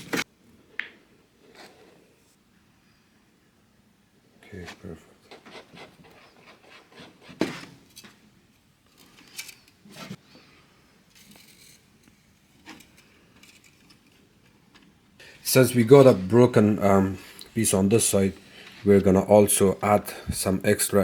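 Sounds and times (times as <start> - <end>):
epoxy scraping and rubbing: 4.6 - 8.1.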